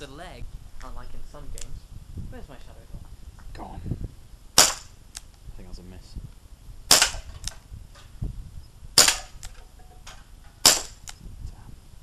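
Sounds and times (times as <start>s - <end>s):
airgun shots: 4.6s - 4.9s, 6.9s - 7.6s, 9.0s - 9.6s, 10.6s - 11.1s.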